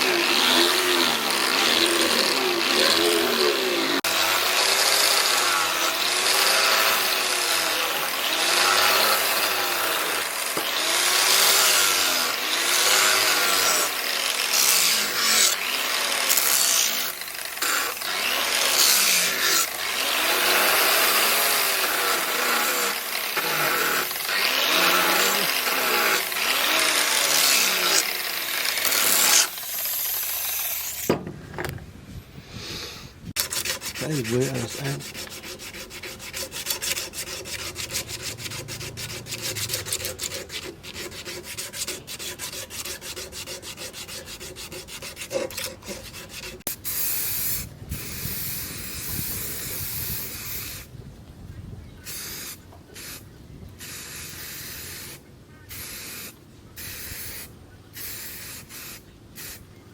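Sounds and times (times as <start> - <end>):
file scraping on blade: 0.0 - 29.6, 33.4 - 50.8.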